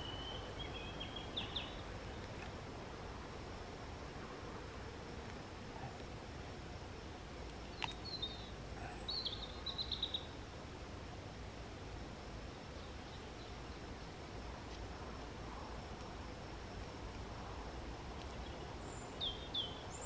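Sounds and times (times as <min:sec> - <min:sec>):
small bird chirping: 0:00.0 - 0:02.5, 0:07.6 - 0:10.4, 0:18.2 - 0:20.0.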